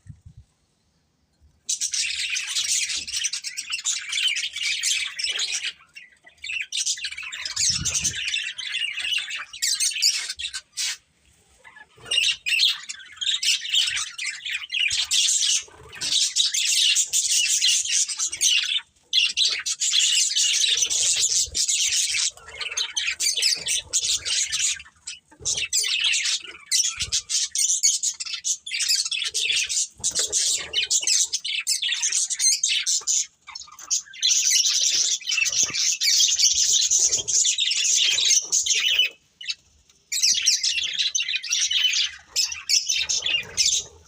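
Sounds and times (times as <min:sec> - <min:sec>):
budgerigars chattering: 0:12.0 - 0:39.6.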